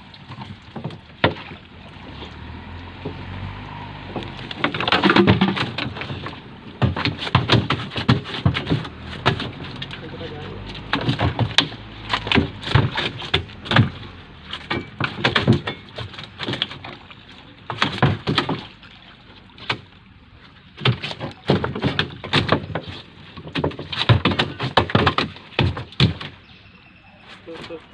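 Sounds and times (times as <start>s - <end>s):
irregular knocks and clatters: 4.0s - 17.1s, 17.7s - 18.7s, 20.8s - 26.4s.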